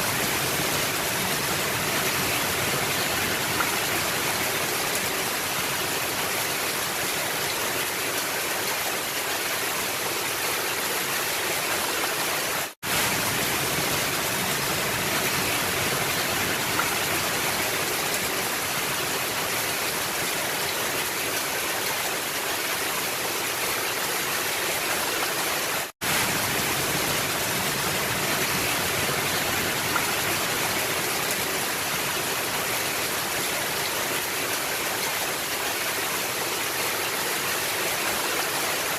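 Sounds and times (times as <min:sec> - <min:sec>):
heavy rain on a roof: 0:00.0 - 0:38.9.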